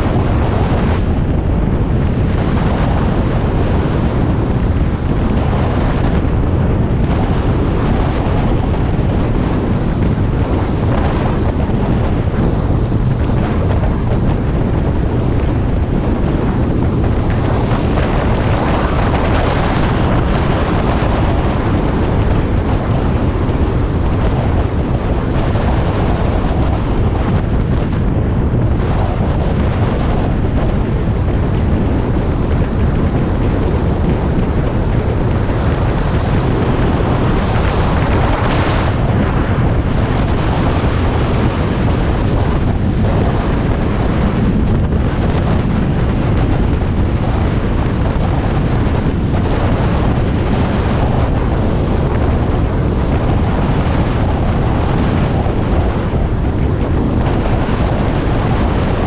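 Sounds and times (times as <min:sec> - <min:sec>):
road noise: 0:00.0 - 0:59.0
wind buffeting microphone: 0:00.0 - 0:59.0
motorcycle engine: 0:30.0 - 0:40.0.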